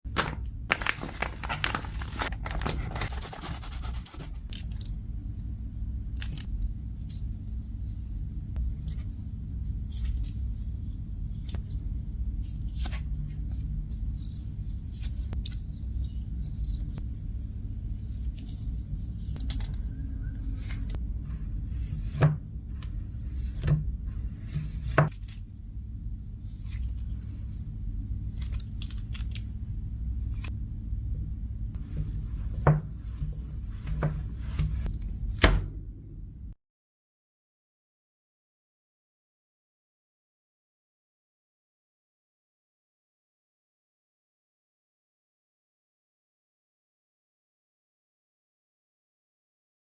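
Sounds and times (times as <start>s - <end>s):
steady low hum: 0.1s - 36.6s
crinkly rustling and scraping: 0.7s - 5.0s, 31.8s - 35.3s.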